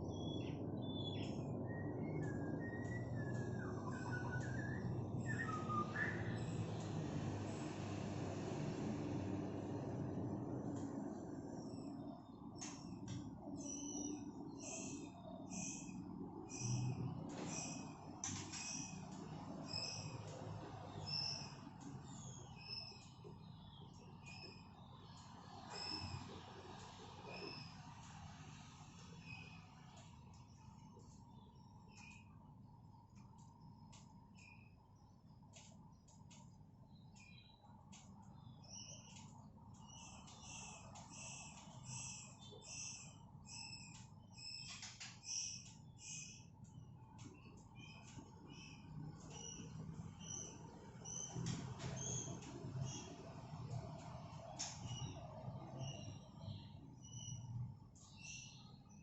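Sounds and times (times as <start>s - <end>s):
young birds begging chirps: 0.0s - 12.0s, 12.6s - 26.1s, 38.3s - 59.0s
low steady hum: 0.0s - 59.0s.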